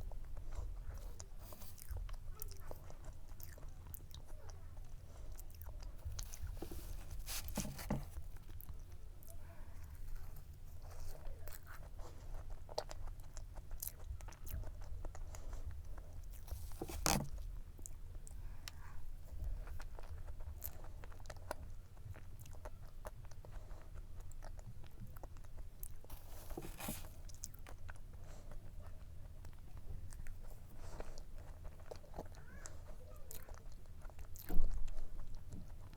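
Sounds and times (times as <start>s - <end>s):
chewing and crunching cake: 0.0s - 35.9s.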